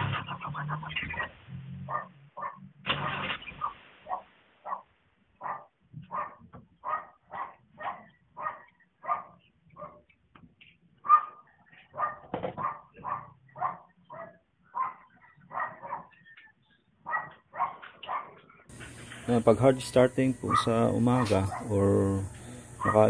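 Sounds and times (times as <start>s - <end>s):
dog barking: 1.1s - 10.2s, 11.0s - 16.3s, 17.0s - 18.5s, 20.4s - 21.8s, 22.8s - 23.0s.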